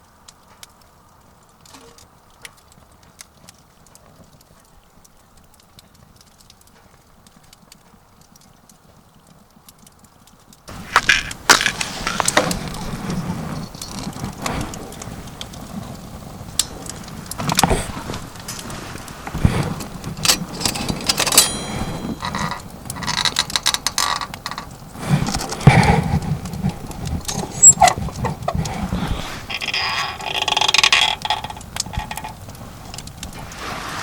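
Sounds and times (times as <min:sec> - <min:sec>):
knocks and clicks: 0:19.4 - 0:33.4
brief metallic ring: 0:21.4 - 0:22.3.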